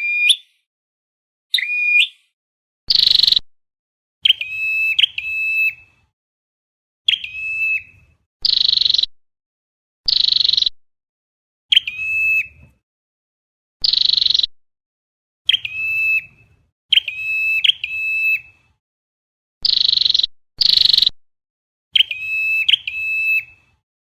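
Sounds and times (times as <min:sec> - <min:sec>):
bird whistled note: 0:00.0 - 0:00.6, 0:15.5 - 0:16.3, 0:16.9 - 0:18.5, 0:22.0 - 0:23.6.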